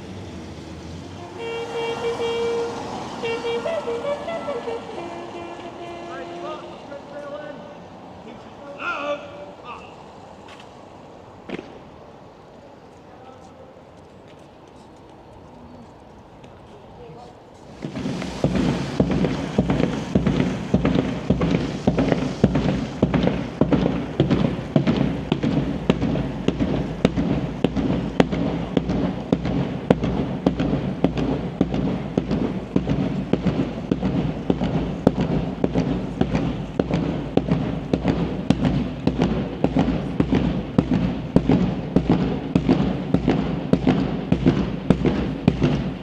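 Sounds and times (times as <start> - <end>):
hard footfalls on road: 10.4 - 10.8, 11.4 - 11.8, 17.6 - 46.0
steady low rumble: 17.7 - 46.0.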